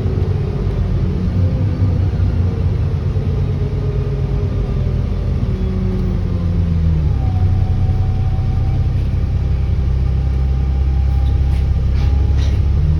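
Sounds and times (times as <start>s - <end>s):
bus engine running: 0.0s - 12.9s.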